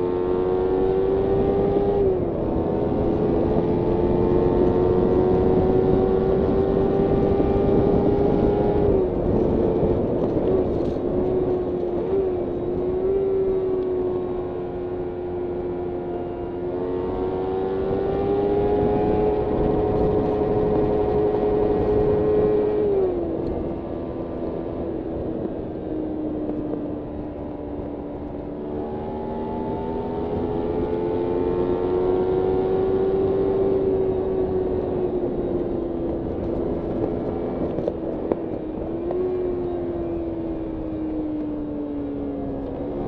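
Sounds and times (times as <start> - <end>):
motorcycle engine: 0.0 - 43.0
wind rush: 0.0 - 43.0.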